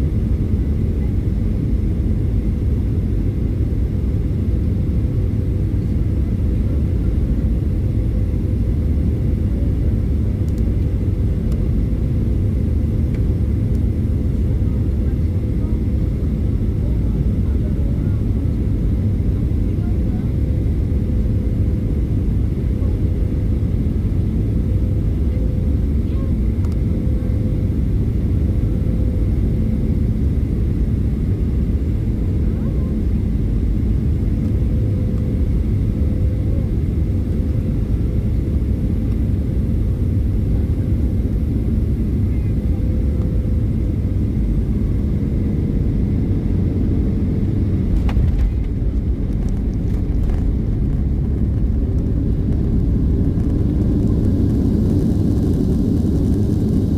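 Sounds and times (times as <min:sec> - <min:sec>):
aircraft engines rumbling: 0:00.0 - 0:56.9
cabin hum: 0:42.3 - 0:56.6.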